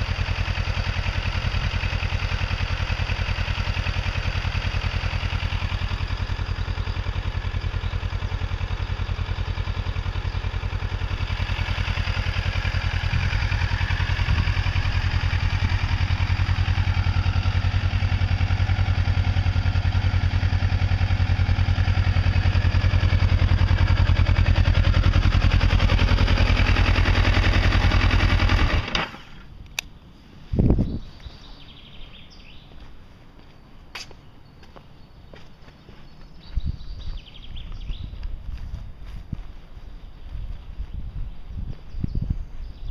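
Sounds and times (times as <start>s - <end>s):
motorcycle engine idling: 0.0s - 29.8s.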